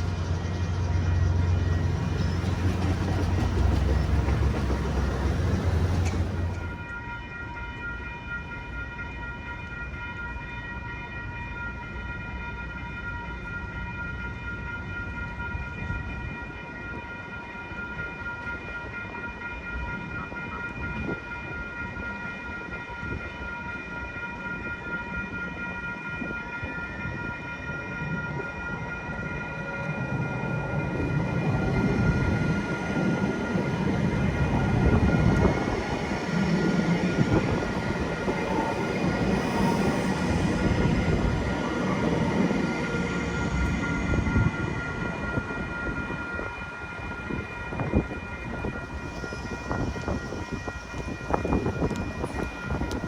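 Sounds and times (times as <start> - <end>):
tram rumbling: 0.0 - 9.5, 13.1 - 53.0
railroad crossing bells ringing: 0.0 - 53.0
traffic and rail rumble: 0.0 - 53.0.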